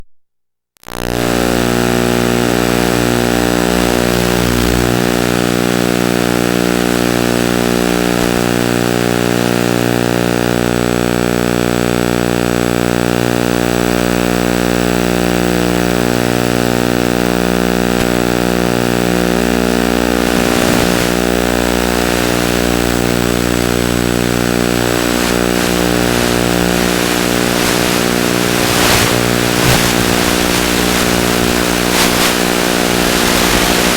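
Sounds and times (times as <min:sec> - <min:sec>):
steady buzzing drone: 0:16.0 - 0:33.9.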